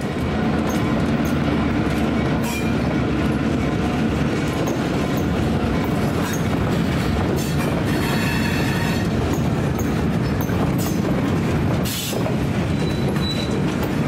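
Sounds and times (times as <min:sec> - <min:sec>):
diesel locomotives running: 0:00.0 - 0:14.0
freight cars clacking over rail joints: 0:00.1 - 0:14.0
faint wheel squeal: 0:12.7 - 0:13.6.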